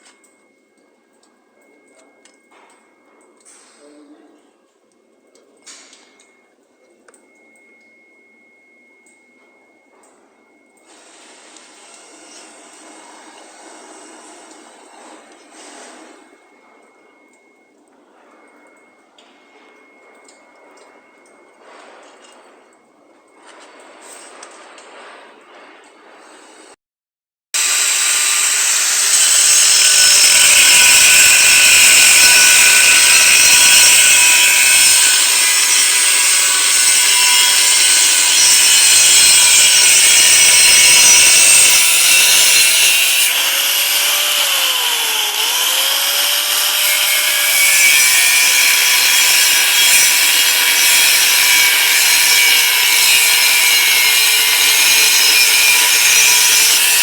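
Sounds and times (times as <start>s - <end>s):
power tool grinding metal pipe: 27.6s - 57.0s.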